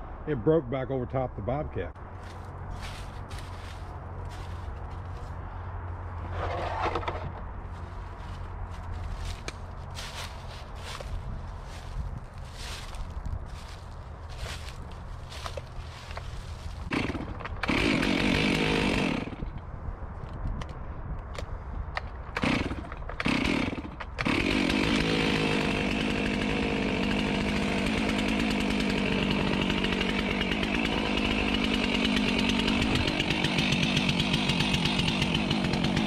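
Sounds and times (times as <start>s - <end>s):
chainsaw running: 7.8s - 19.6s, 22.3s - 36.0s.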